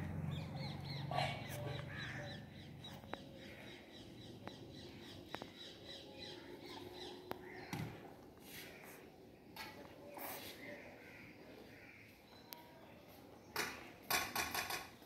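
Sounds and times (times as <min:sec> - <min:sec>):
birds chirping: 0:00.0 - 0:08.9.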